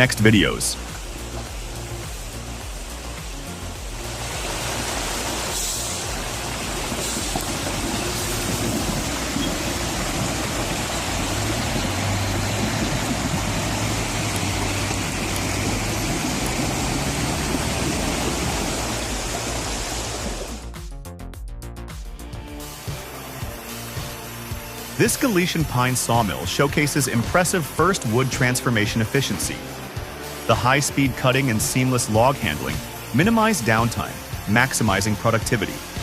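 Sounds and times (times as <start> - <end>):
low hum: 0.9 - 20.7
loud machinery noise: 4.4 - 20.4.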